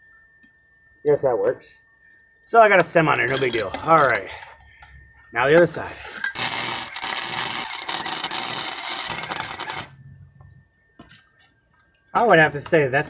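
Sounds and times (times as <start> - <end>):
arc welder crackling hiss: 6.0 - 10.0.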